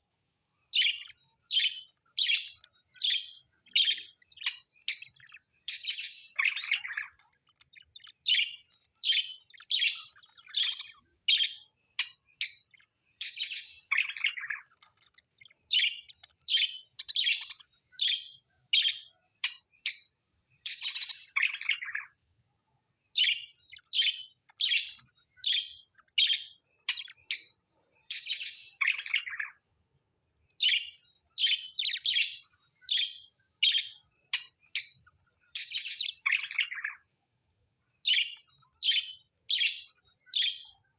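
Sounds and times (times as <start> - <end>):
birds chirping: 0.0 - 22.2, 23.1 - 29.7, 30.4 - 37.1, 37.9 - 40.9.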